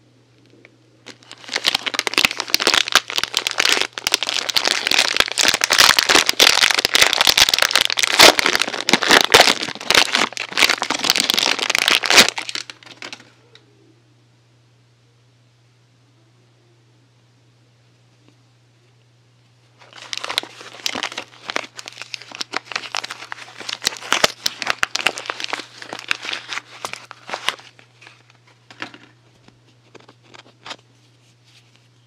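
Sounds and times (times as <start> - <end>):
packaging crinkling: 1.0 - 13.3, 19.8 - 30.8.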